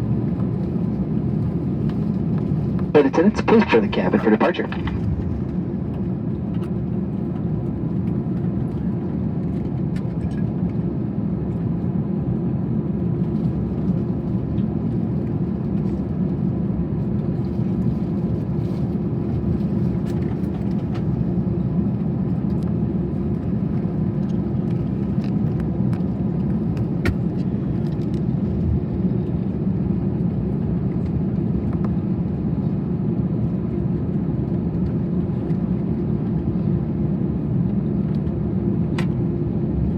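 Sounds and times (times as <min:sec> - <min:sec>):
aircraft cabin hum: 0:00.0 - 0:11.0.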